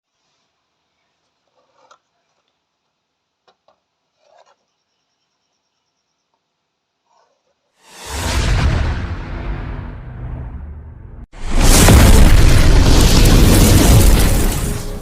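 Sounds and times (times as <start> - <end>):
faint clicks and rubs: 1.2 - 4.7
deep boom with whoosh: 7.9 - 15.0.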